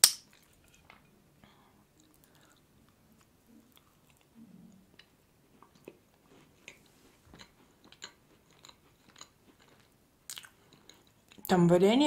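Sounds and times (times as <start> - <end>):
person chewing pastry: 1.9 - 11.5.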